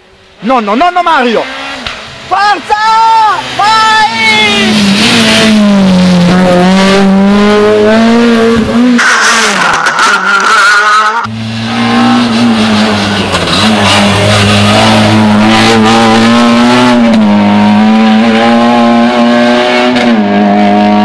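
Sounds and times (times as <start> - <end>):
rally car engine running loud: 4.5 - 21.0.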